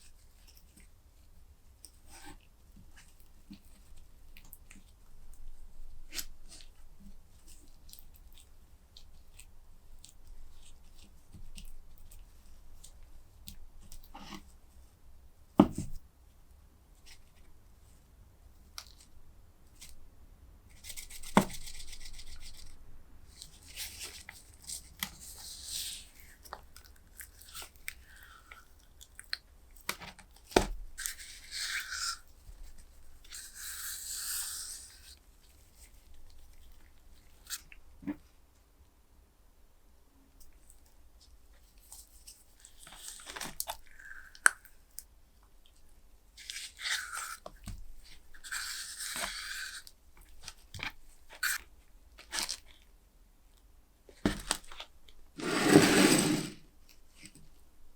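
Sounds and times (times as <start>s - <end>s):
rubbing and scraping handling noise: 54.1s - 57.6s.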